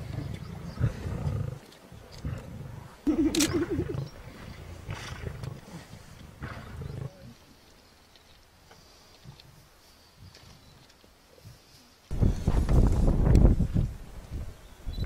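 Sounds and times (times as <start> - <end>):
big cat growling: 0.0 - 7.4.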